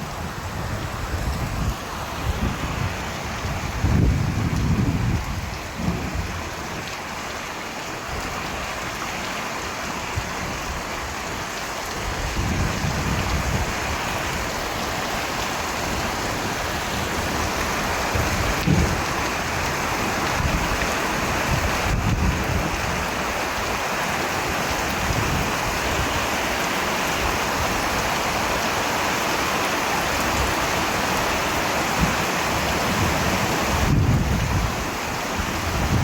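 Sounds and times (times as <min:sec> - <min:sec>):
heavy rain falling: 0:00.0 - 0:36.0
thunder rumbling: 0:00.3 - 0:06.6, 0:17.0 - 0:20.8, 0:32.0 - 0:36.0.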